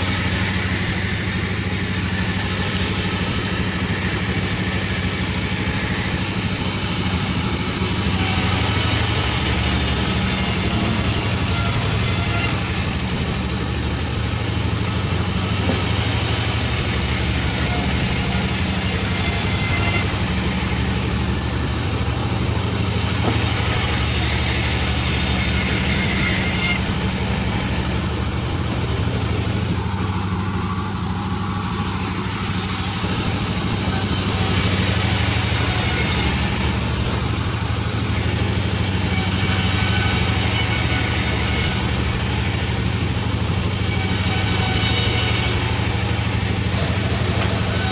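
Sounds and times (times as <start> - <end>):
saw blade rasping through wood: 0.0 - 47.9
sawmill machine drone: 0.0 - 47.9.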